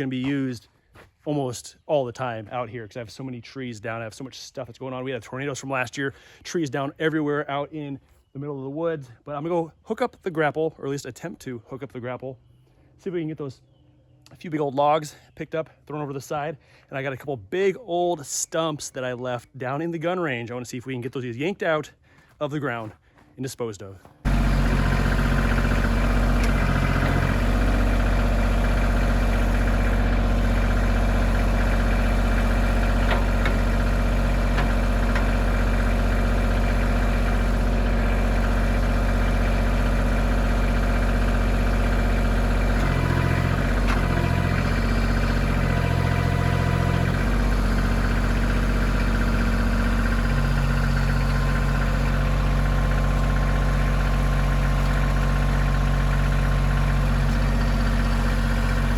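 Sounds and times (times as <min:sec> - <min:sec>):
tractor diesel engine running: 0:24.2 - 0:58.9.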